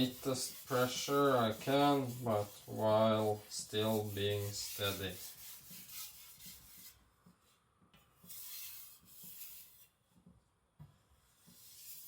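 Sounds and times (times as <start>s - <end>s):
blade strokes on wet whetstone: 0.0s - 7.0s.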